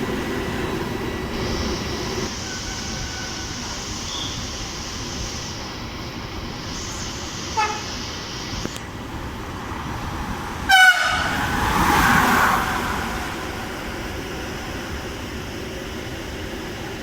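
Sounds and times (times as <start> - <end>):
train rushing past: 0.0 - 17.0
train horn: 7.6 - 7.9, 10.7 - 11.5.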